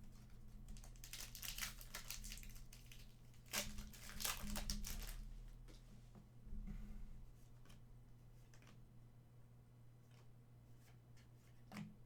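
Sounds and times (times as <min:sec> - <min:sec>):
low electrical hum: 0:00.0 - 0:12.0
card wrappers crinkling and tearing: 0:00.7 - 0:05.2.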